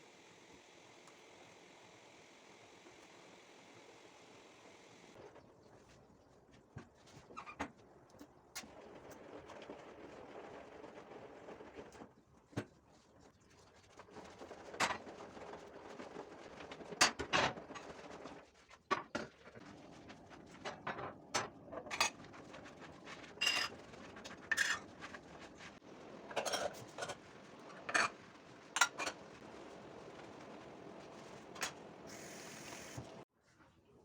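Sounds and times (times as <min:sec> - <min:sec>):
dishes and cutlery clinking: 0:26.3 - 0:27.2.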